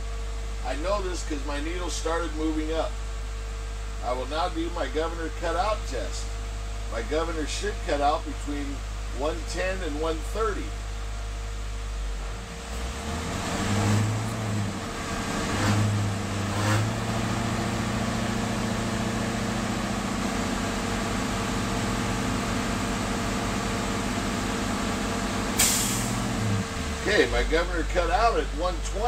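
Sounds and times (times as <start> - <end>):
bus engine revving: 12.2 - 29.0.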